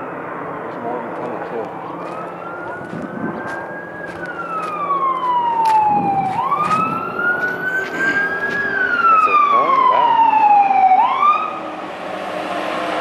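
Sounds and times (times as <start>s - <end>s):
emergency siren wailing: 0.0s - 13.0s.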